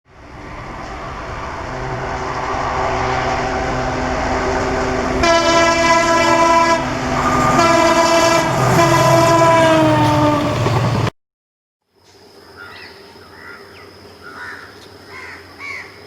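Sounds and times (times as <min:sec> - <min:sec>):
diesel engines droning: 0:00.1 - 0:11.0
locomotive horn blasts: 0:01.7 - 0:10.7.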